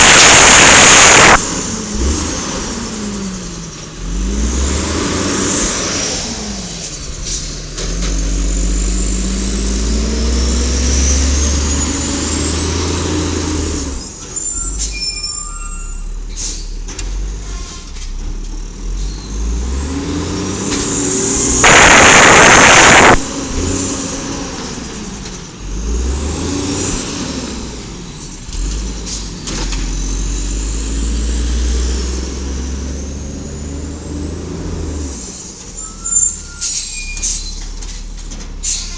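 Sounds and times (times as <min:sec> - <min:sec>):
whines: 0:00.0 - 0:01.4, 0:20.6 - 0:23.4
truck engine revving: 0:00.0 - 0:14.0, 0:18.8 - 0:35.1.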